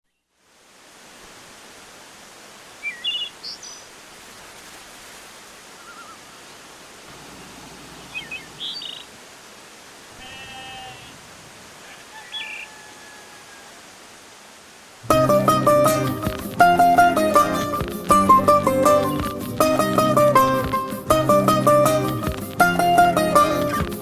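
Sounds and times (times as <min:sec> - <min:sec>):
steady hiss: 0:00.1 - 0:24.0
bird chirps: 0:02.8 - 0:06.7, 0:08.0 - 0:09.2, 0:11.9 - 0:12.8
animal bleating: 0:10.1 - 0:11.3.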